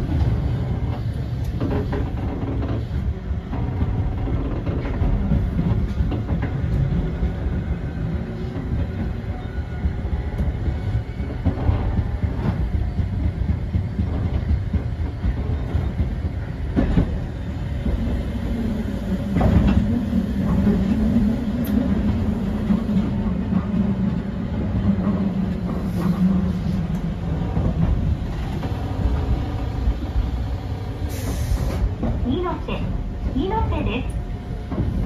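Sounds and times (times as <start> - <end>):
clacks over rail joints: 0.0 - 7.5, 9.8 - 18.1
rumble of wheels on rail: 0.0 - 35.0.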